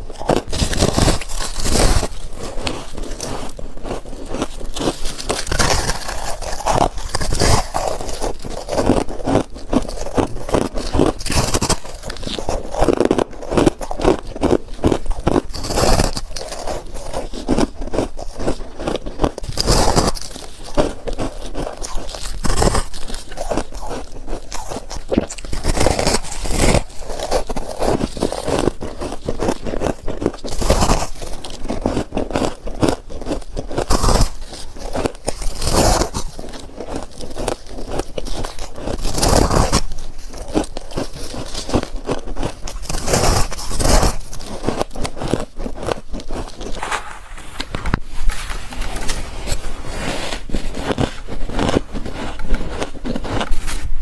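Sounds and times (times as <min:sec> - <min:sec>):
crunching frost in mouth: 0:00.0 - 0:54.0.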